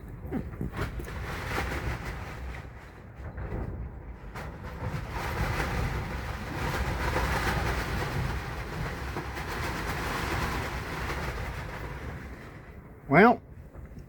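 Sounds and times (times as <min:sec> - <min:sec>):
heavy wind gusting: 0:00.0 - 0:14.0.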